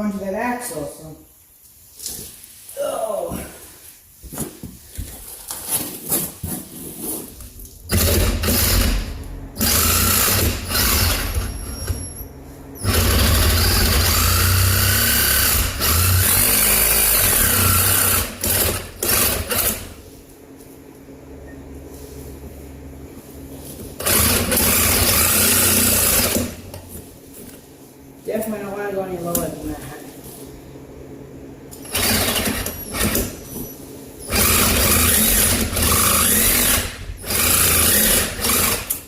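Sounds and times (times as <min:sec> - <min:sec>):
power tool cutting steel: 0:07.9 - 0:12.0, 0:12.8 - 0:19.9, 0:24.0 - 0:26.5, 0:34.3 - 0:39.0.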